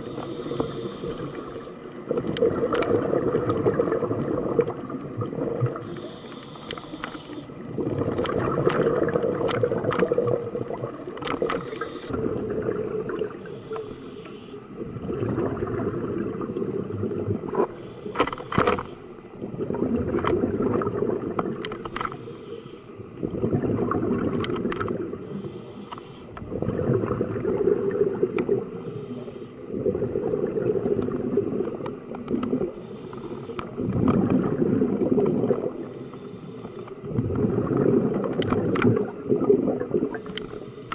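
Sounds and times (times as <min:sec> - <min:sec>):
regulator inhale hiss: 0:00.0 - 0:02.6, 0:05.8 - 0:07.6, 0:11.4 - 0:12.2, 0:12.8 - 0:14.8, 0:17.7 - 0:19.2, 0:21.8 - 0:23.1, 0:25.2 - 0:26.4, 0:28.7 - 0:29.7, 0:32.8 - 0:33.8, 0:35.8 - 0:37.1, 0:40.1 - 0:40.9
exhaled bubbles rushing: 0:01.1 - 0:05.9, 0:07.6 - 0:13.5, 0:14.8 - 0:17.7, 0:19.4 - 0:21.7, 0:23.1 - 0:25.3, 0:26.4 - 0:28.7, 0:29.7 - 0:32.8, 0:33.7 - 0:35.8, 0:37.0 - 0:40.3.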